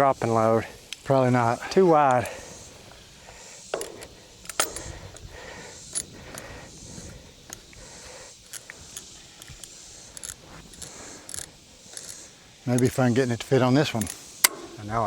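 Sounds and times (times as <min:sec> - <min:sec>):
metal chains clinking: 0:03.7 - 0:14.8.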